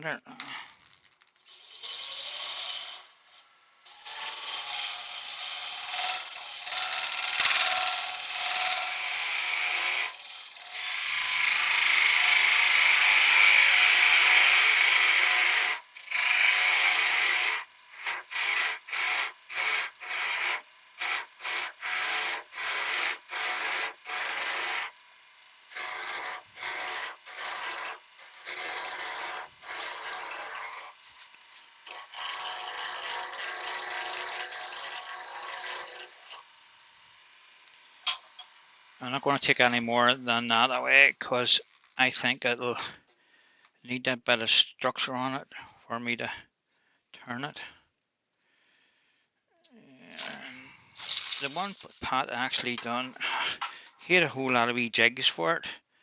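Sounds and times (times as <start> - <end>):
lathe tool cutting wood: 1.4 - 42.0, 50.2 - 53.6.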